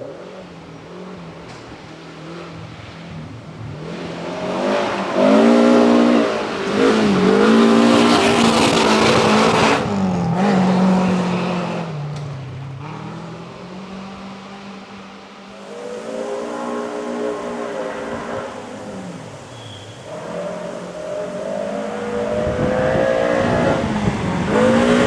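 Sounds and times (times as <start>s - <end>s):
rally car engine revving past: 0.0s - 25.0s.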